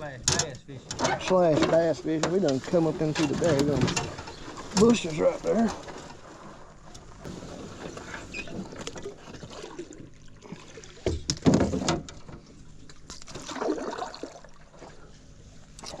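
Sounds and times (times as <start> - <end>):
paddle splashing: 4.2 - 11.8, 12.4 - 15.1.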